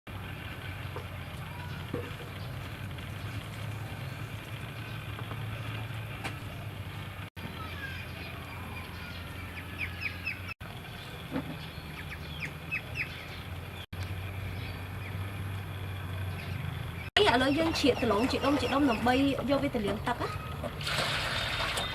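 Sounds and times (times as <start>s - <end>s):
small birds chirping: 0.9s - 6.8s, 7.4s - 20.8s.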